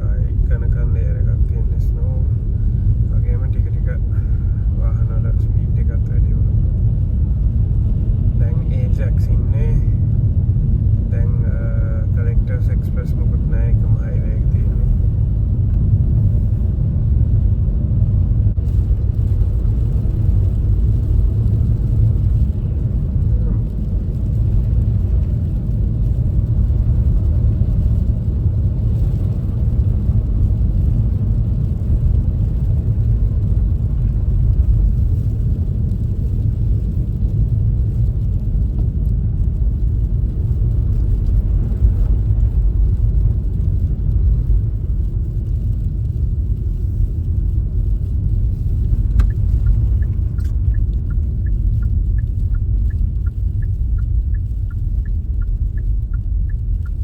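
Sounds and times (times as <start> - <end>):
car tyres and engine rumbling: 0.0 - 57.0
turn signal ticking: 47.5 - 57.0.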